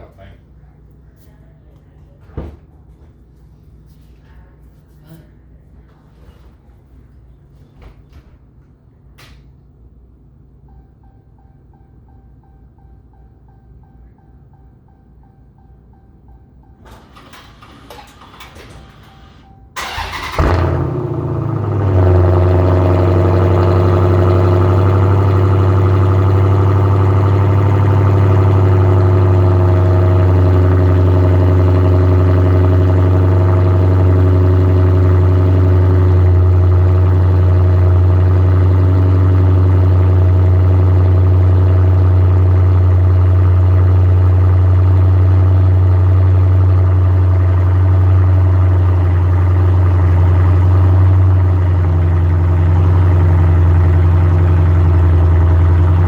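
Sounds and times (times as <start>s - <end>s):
car engine idling with deep drone: 12.0s - 56.0s.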